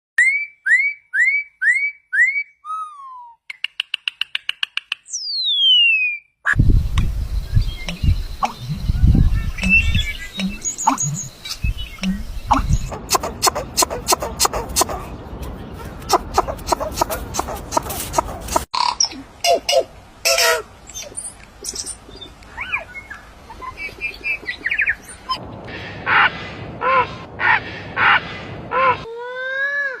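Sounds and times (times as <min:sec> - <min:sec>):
rising and falling bird call: 0:00.2 - 0:06.6, 0:07.2 - 0:15.2, 0:16.0 - 0:29.1
bird chirps and trills: 0:03.5 - 0:25.6.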